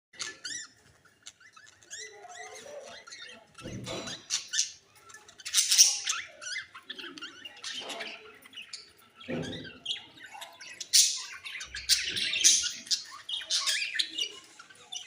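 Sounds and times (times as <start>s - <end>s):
budgerigars chattering chirps: 5.4s - 15.0s.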